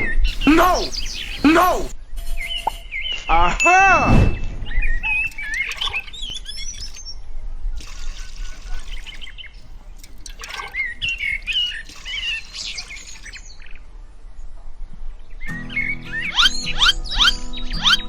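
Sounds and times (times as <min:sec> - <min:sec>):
small birds chirping: 0:00.0 - 0:02.0, 0:04.9 - 0:07.2, 0:07.8 - 0:13.8
steady hiss: 0:00.3 - 0:02.0.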